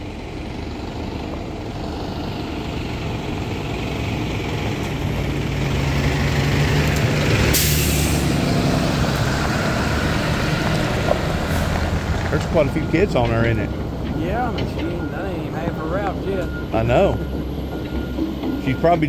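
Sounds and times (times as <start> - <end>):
bus engine running: 0.0 - 19.0
air brakes hissing: 7.4 - 8.4.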